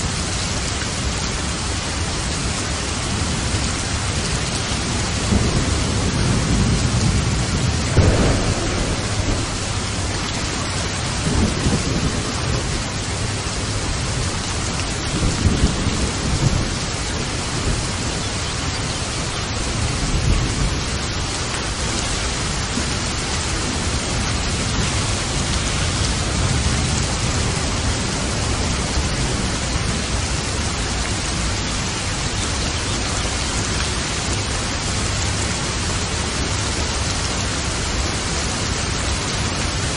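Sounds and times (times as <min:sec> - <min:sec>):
steady rain: 0:00.0 - 0:39.9
thunder rolling: 0:05.2 - 0:18.2.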